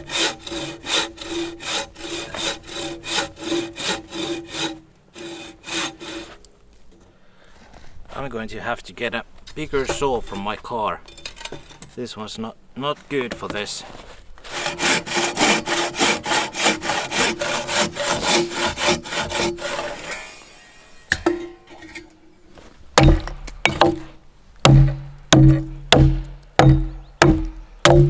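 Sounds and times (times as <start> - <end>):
hand saw cutting log: 0.0 - 6.5, 14.4 - 21.0, 23.0 - 28.0.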